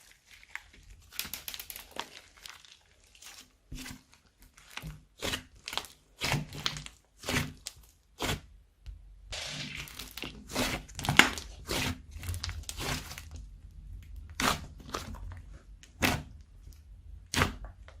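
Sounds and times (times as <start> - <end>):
slime squelching and crackling: 0.0 - 8.5, 9.3 - 18.0
slime popping: 9.4 - 13.4.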